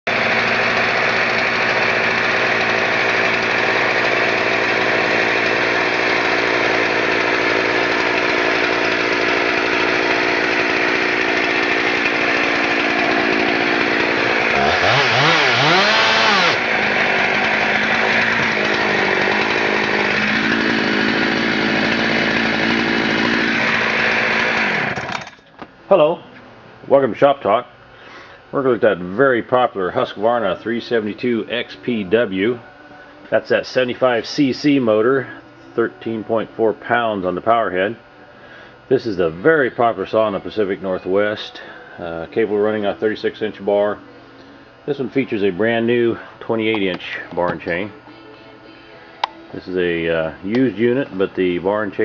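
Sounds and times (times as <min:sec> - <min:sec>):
chainsaw throttle blips: 0:00.1 - 0:25.3
chainsaw running: 0:00.1 - 0:25.4, 0:28.0 - 0:44.2, 0:49.2 - 0:52.0.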